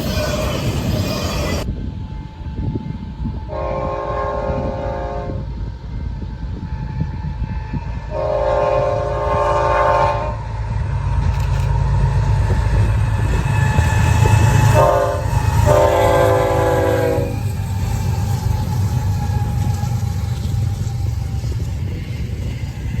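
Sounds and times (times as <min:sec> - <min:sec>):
passing train rumble: 0:00.0 - 0:23.0
locomotive air horn: 0:03.5 - 0:05.5, 0:06.8 - 0:10.5, 0:13.3 - 0:18.2.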